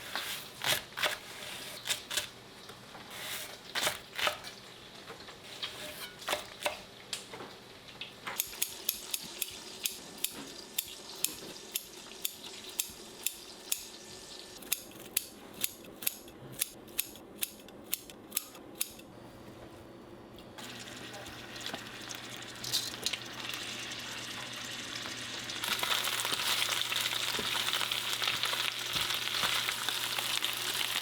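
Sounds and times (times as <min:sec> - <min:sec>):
faint sizzle: 0:20.6 - 0:31.0.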